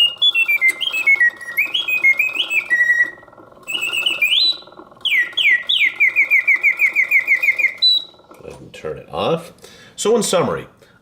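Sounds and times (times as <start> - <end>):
mechanical bird whistle: 0.0 - 8.3
clockwork movement running: 0.0 - 8.5.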